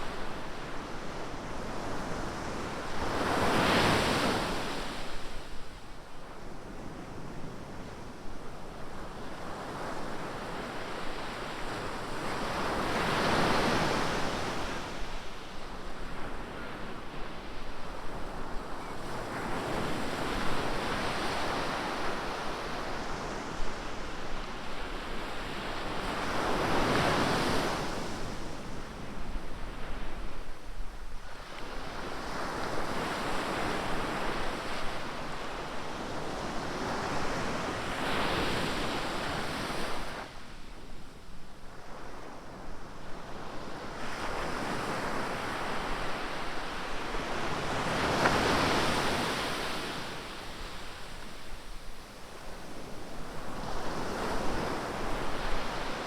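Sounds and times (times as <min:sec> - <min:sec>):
ocean waves breaking on beach: 0:44.0 - 0:51.6.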